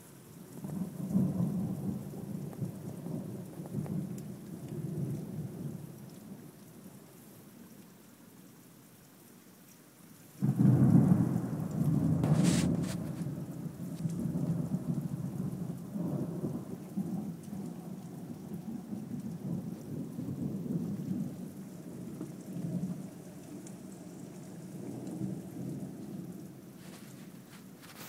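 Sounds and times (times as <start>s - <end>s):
steady rain: 0.0s - 28.0s
thunder clap and rumble: 10.4s - 26.4s.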